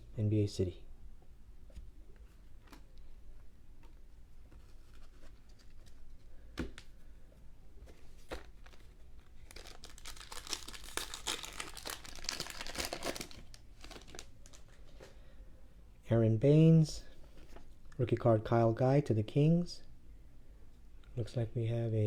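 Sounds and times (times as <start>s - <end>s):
foil wrapper tearing and crinkling: 9.4s - 14.8s.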